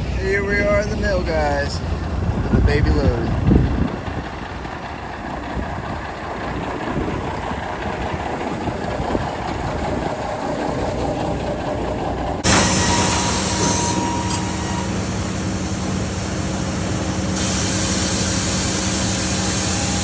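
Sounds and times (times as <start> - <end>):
truck and load rattling: 0.0 - 20.0
truck engine rumble: 0.0 - 20.0
loud steady hum: 12.4 - 20.0.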